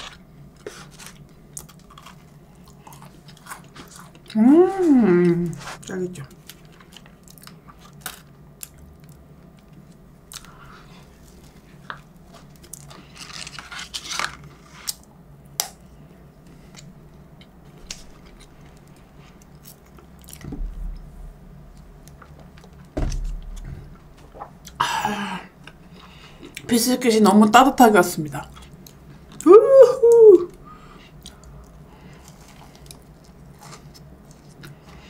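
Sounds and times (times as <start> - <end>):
dull bumps: 22.9 - 24.3.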